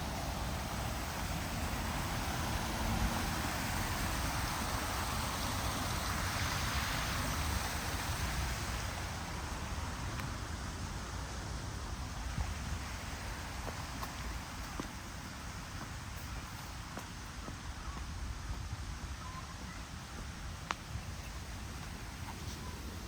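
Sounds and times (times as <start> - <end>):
stream water rushing: 0.0 - 23.0.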